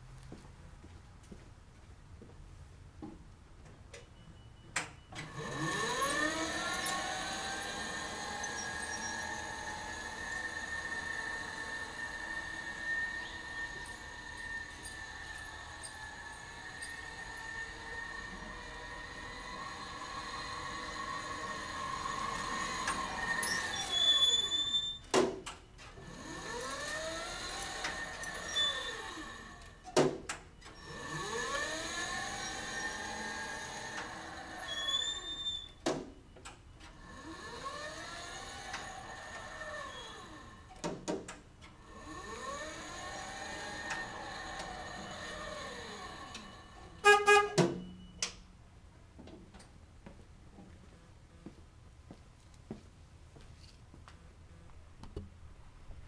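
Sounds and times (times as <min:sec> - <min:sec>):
electric motor whine: 0:05.2 - 0:24.8, 0:25.9 - 0:29.8, 0:30.7 - 0:35.3, 0:37.0 - 0:40.7, 0:41.8 - 0:47.0.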